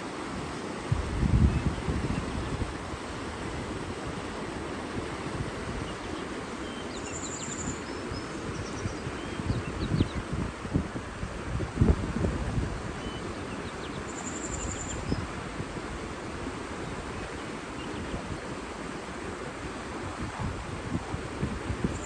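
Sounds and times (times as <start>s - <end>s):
running water rushing: 0.0s - 22.0s
faint bird chirps: 6.6s - 10.3s, 13.0s - 15.2s.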